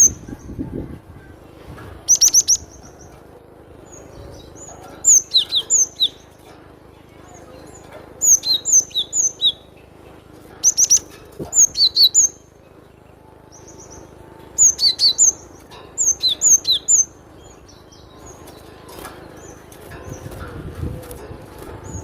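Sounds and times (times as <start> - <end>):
bird singing high notes: 13.5 - 20.4.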